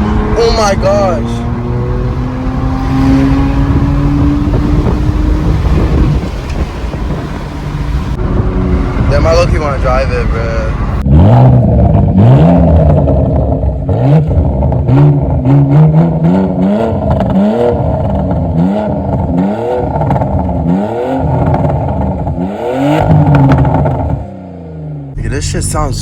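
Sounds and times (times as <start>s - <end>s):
car engine revving: 0.0s - 26.0s
exhaust pops and crackles: 4.0s - 11.0s, 23.0s - 24.2s.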